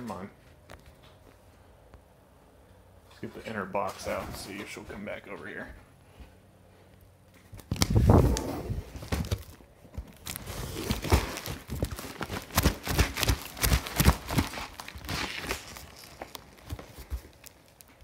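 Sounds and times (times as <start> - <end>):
cardboard rustling and scraping: 7.7 - 18.0.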